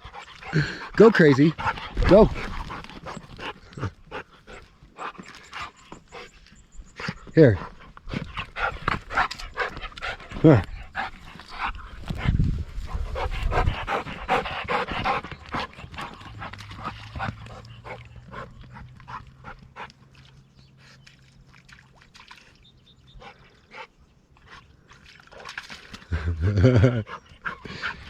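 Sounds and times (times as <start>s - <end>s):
dog breathing: 0.0s - 19.9s.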